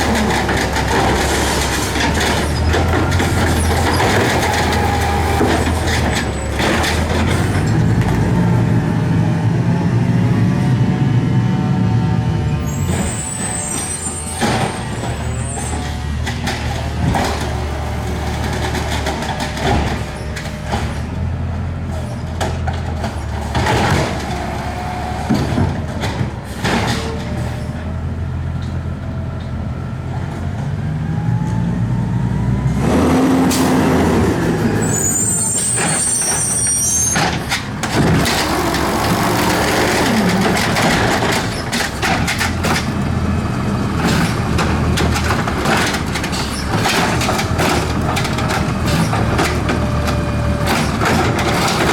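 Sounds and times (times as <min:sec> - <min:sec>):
garbage truck engine humming: 0:00.0 - 0:51.9
short high squeal: 0:34.7 - 0:37.3
clatters and knocks: 0:37.2 - 0:51.9.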